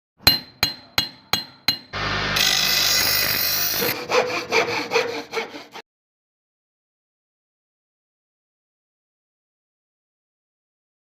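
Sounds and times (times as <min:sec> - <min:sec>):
rasping strokes on steel: 0:00.3 - 0:05.8.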